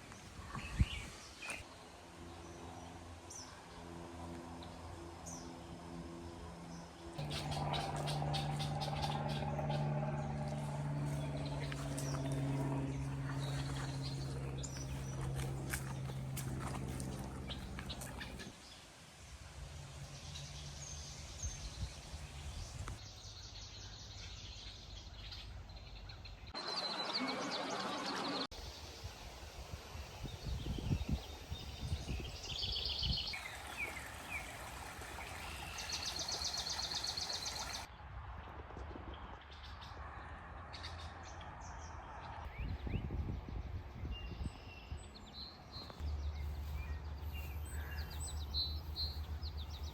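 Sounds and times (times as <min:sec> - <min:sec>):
steady low hum: 0:01.8 - 0:18.5.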